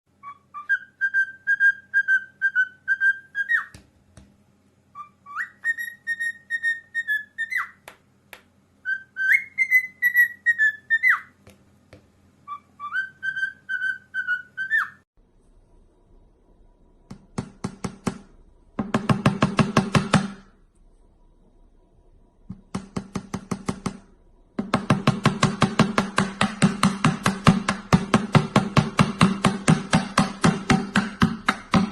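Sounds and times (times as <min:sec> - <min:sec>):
parrot whistling a tune: 0:00.2 - 0:03.8, 0:04.9 - 0:07.8, 0:08.8 - 0:11.4, 0:12.4 - 0:15.0.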